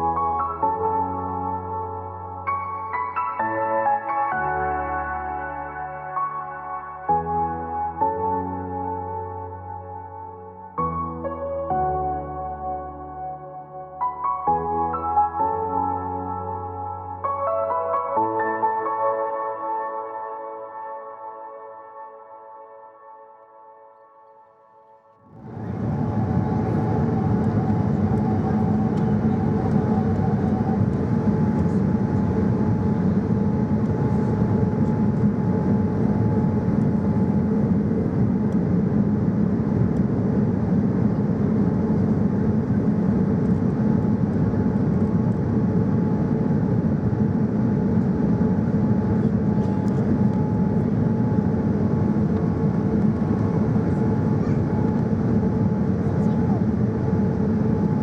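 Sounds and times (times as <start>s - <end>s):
faint steady whining tones: 25.3s - 58.0s
airliner cabin engine rumble: 25.4s - 58.0s.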